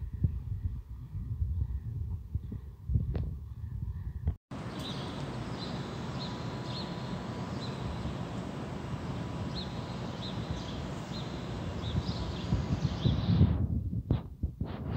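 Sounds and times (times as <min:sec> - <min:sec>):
small birds chirping: 0:03.5 - 0:13.3.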